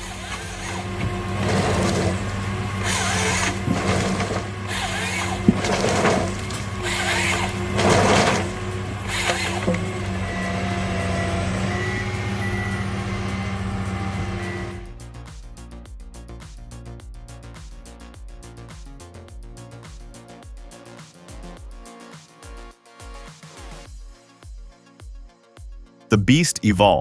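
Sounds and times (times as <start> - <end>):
heavy diesel machine running: 0.0 - 14.9.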